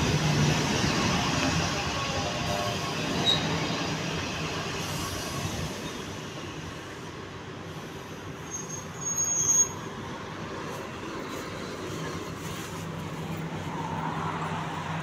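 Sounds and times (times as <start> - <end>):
train passing at speed: 0.0 - 8.5
high-pitched squeal: 0.8 - 6.2.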